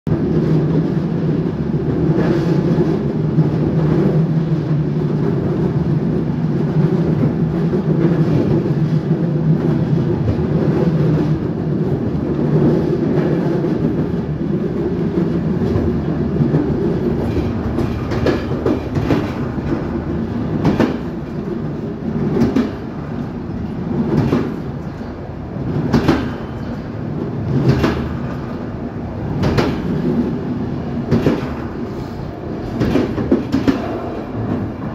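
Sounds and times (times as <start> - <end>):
train rumble from inside carriage: 0.1 - 34.9
wheels clacking over rail joints: 6.7 - 34.9.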